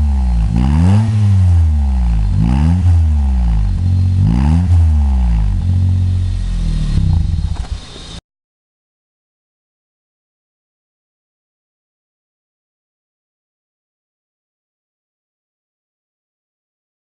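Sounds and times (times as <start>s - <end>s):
car engine idling: 0.0s - 8.2s
car engine revving: 0.0s - 8.2s.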